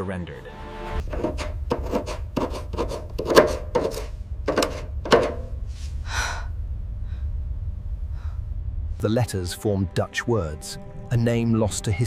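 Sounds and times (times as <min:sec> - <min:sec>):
stiff brush scrubbing: 0:01.0 - 0:05.5
steady low hum: 0:01.0 - 0:12.0.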